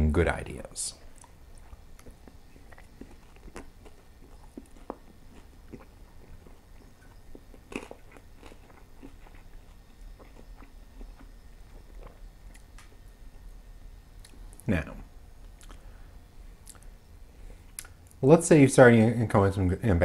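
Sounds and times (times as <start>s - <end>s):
chewing with crunches: 1.0s - 13.6s, 14.2s - 14.7s, 15.4s - 15.9s, 16.6s - 18.2s
wet mouth clicks: 15.5s - 15.8s, 16.6s - 16.9s, 17.8s - 18.0s.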